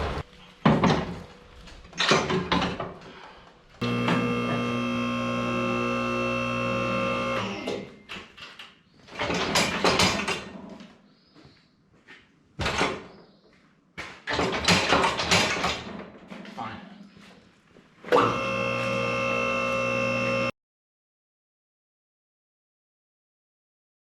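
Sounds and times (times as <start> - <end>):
machine humming: 0.0 - 0.5, 3.7 - 7.7, 18.2 - 20.5.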